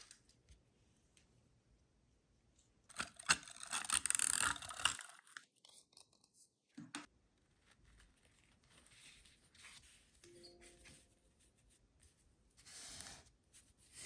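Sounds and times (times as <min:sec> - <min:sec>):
paper crackling and rustling: 0:07.4 - 0:10.1.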